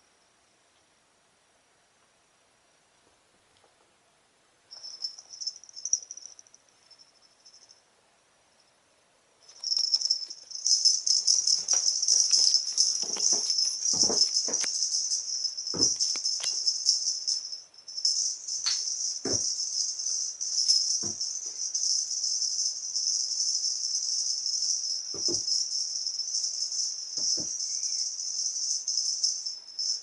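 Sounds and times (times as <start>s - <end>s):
high-pitched jingling rattle: 4.7s - 7.8s, 9.4s - 30.0s
soft knocks: 11.6s - 14.7s, 19.3s - 19.5s.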